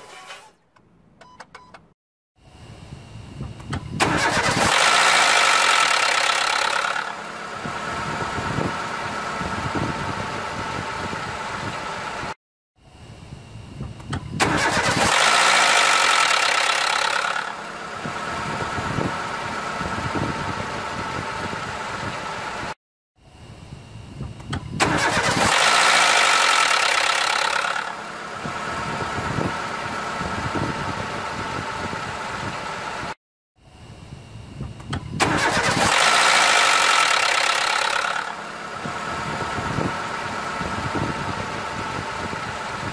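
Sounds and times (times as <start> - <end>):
loud engine noise with high whine: 2.4 - 42.9
engine idling: 3.5 - 12.4, 13.9 - 22.8, 24.2 - 33.2, 34.6 - 42.9
car engine starting: 4.0 - 12.4, 14.4 - 22.8, 24.8 - 33.2, 35.1 - 42.9.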